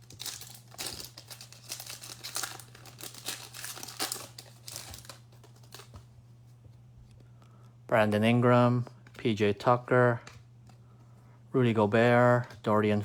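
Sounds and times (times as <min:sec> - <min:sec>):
foil wrapper crinkling and tearing: 0:00.0 - 0:06.0
cards rustling: 0:00.0 - 0:06.5.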